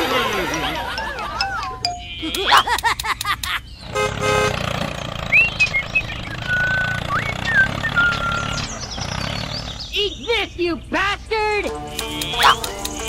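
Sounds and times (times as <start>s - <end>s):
springy cartoon sound effects: 0.0s - 3.5s, 11.9s - 13.0s
toy tractor engine rumble: 0.0s - 10.0s, 11.7s - 13.0s
horn toot: 3.9s - 4.7s
whistled chirps: 5.3s - 8.8s.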